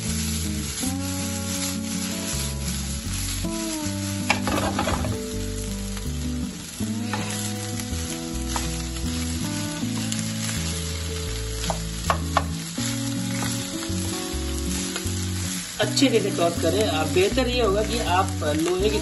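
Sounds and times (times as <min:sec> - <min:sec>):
background music: 0:00.0 - 0:19.0
rice sizzling in a pan: 0:00.0 - 0:19.0
spatula tapping on pan: 0:11.6 - 0:12.6.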